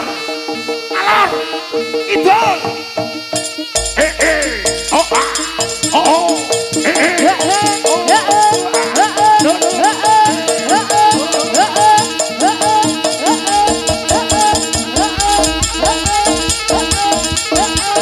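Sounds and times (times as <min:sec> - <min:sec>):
amplified gamelan music: 0:03.7 - 0:08.9, 0:13.9 - 0:18.0
deep bass: 0:03.8 - 0:06.7, 0:15.2 - 0:17.3.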